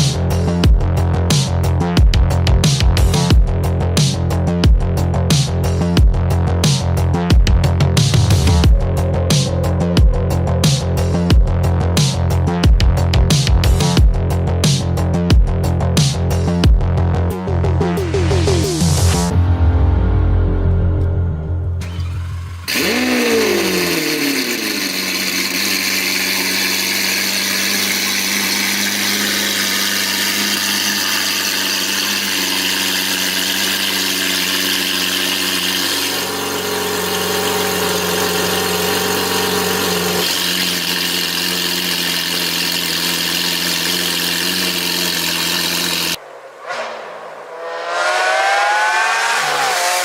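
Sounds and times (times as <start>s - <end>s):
car engine revving and idling: 0.0s - 50.0s.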